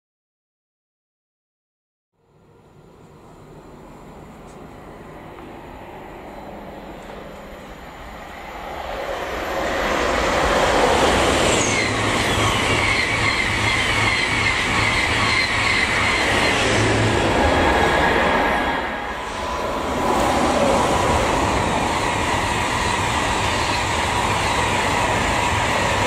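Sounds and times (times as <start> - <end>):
train rushing past: 3.1 - 26.0.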